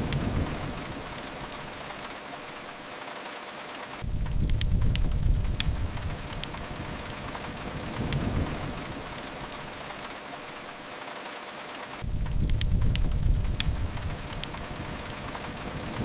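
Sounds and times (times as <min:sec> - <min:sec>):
crackling fireplace: 0:00.0 - 0:16.0
rain on a window: 0:00.0 - 0:16.0
low rumble: 0:04.0 - 0:09.2, 0:12.0 - 0:16.0.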